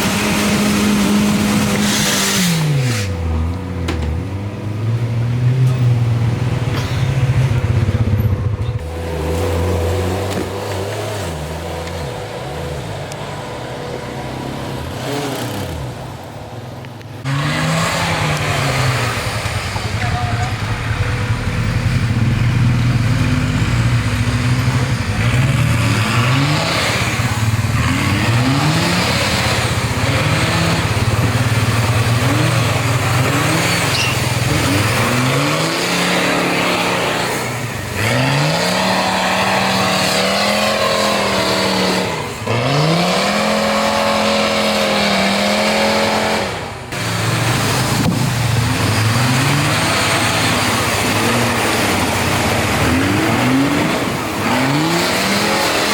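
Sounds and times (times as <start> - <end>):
engine revving hard: 0.0 - 3.2, 17.2 - 55.9.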